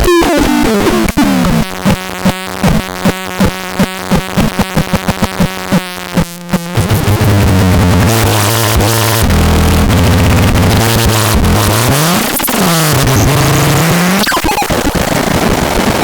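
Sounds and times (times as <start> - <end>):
electronic blips: 6.8 - 15.0.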